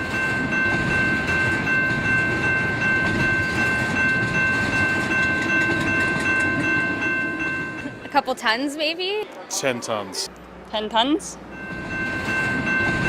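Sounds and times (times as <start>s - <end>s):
train rumbling by: 0.0s - 13.0s.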